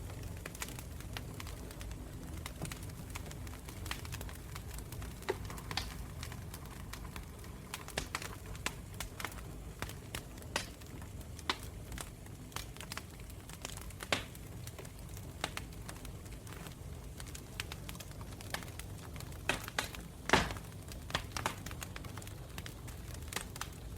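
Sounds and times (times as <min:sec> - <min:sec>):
campfire crackling and popping: 0:00.0 - 0:23.9.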